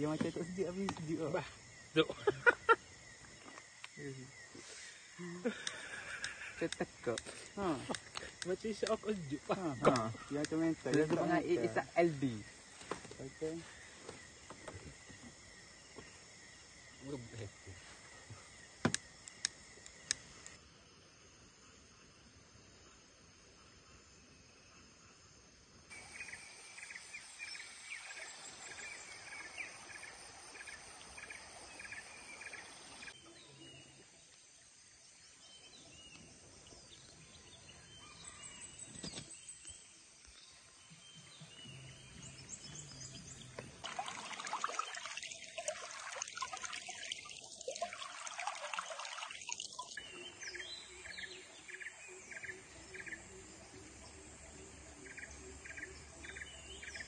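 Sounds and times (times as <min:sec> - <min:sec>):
running water: 0:00.0 - 0:20.6, 0:25.9 - 0:33.3, 0:40.5 - 0:51.3.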